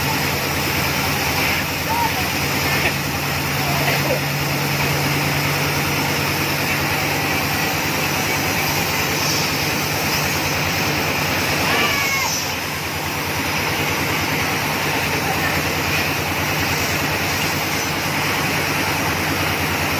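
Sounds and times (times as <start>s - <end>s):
drilling rig engine roaring: 0.0s - 19.9s.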